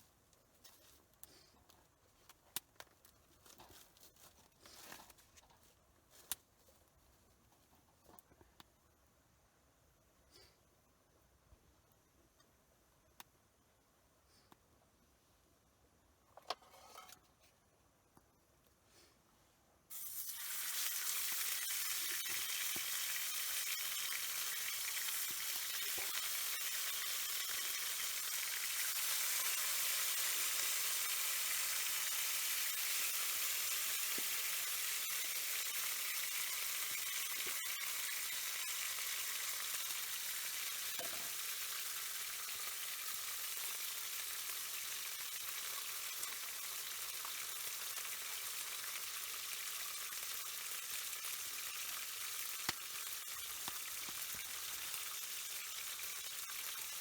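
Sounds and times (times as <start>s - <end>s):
food sizzling in a pan: 19.9s - 57.0s.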